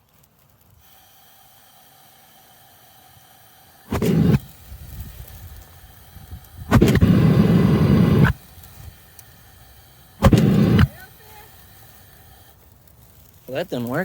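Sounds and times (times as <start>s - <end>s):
propane burner rushing flame: 0.0s - 14.0s
burner ignition pop: 3.9s - 9.3s, 10.2s - 12.4s.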